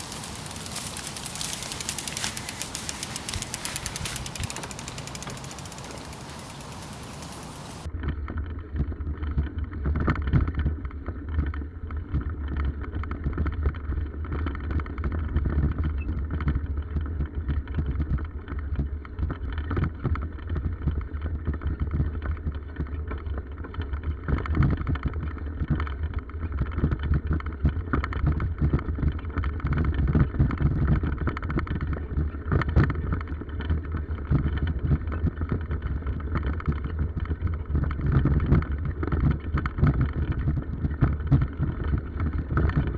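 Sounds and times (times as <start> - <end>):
wind buffeting microphone: 0.0 - 7.9.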